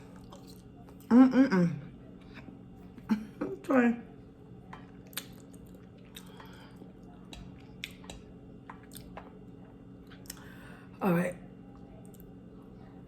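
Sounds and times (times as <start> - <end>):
person chewing food: 0.0 - 1.1, 4.7 - 10.5
wet mouth clicks: 7.3 - 9.3.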